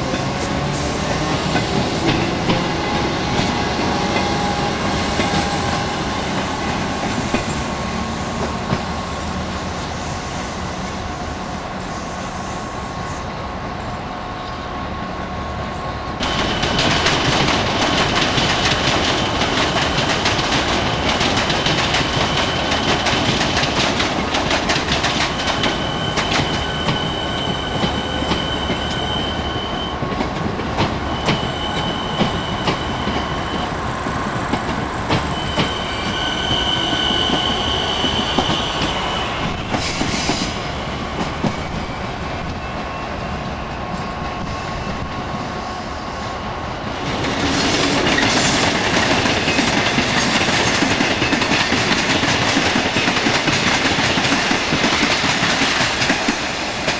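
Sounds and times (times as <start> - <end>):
diesel locomotive passing: 0.0 - 56.9
electric train rolling past: 0.0 - 56.9
high wheel squeal: 25.2 - 30.1, 31.0 - 34.0, 35.2 - 45.2.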